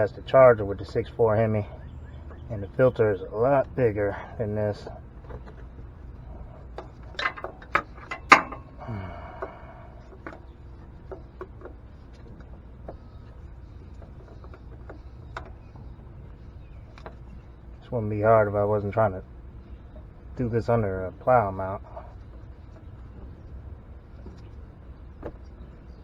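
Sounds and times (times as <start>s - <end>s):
metallic clicks of filter wrench: 6.8s - 8.9s.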